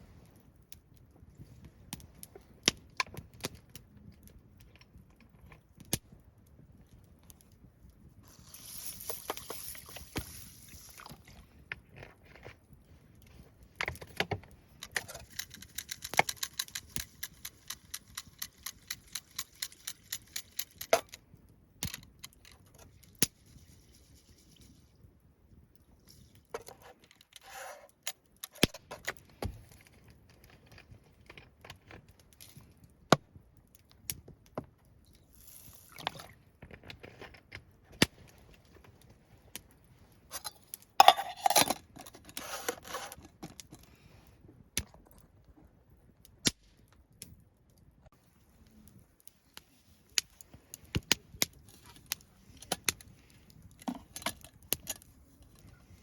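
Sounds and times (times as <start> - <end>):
cooking gear clinking and clattering: 40.3 - 43.9.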